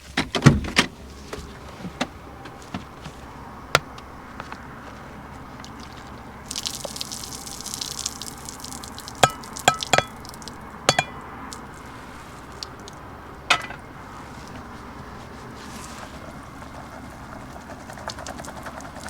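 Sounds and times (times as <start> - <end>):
utensil striking a pot: 9.2 - 10.2, 10.9 - 11.2.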